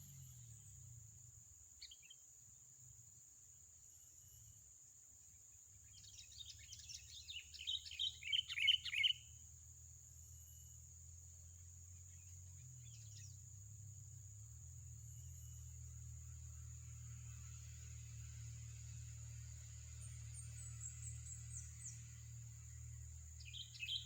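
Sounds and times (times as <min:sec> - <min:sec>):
small bird chirping: 0:00.0 - 0:04.7, 0:05.3 - 0:24.0.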